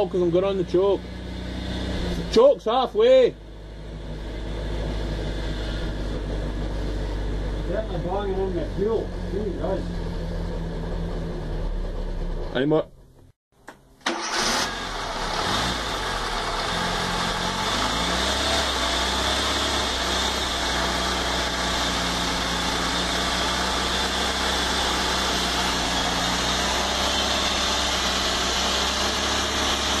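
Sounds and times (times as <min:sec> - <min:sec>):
petrol engine idling: 0:03.3 - 0:13.3.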